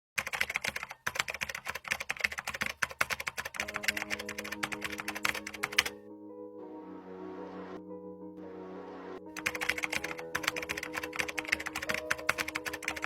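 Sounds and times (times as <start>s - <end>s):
fast typing on a keyboard: 0.2s - 5.9s, 9.4s - 13.0s
soft music with held notes: 3.6s - 13.0s.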